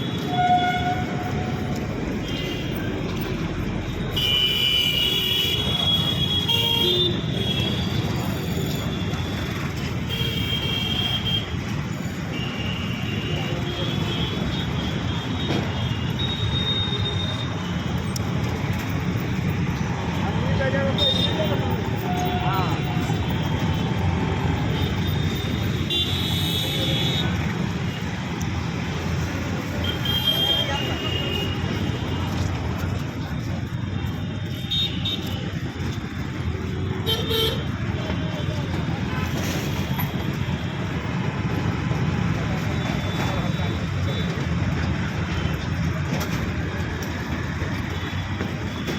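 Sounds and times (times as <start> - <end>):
road traffic: 0.0 - 48.9
train wheels rumbling on rails: 37.6 - 48.9.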